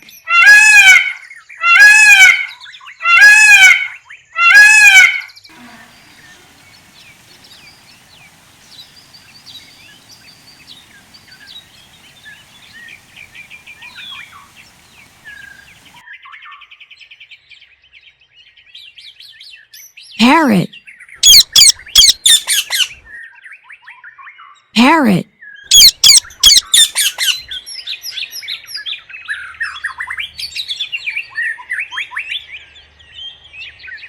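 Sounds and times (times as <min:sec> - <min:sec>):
peacock calling: 0:04.5 - 0:16.0, 0:21.2 - 0:22.9, 0:25.7 - 0:27.4
small birds twittering: 0:05.5 - 0:16.0, 0:21.2 - 0:22.9, 0:25.7 - 0:27.5
fast bird trill: 0:05.9 - 0:16.0, 0:21.2 - 0:22.9, 0:25.7 - 0:27.4.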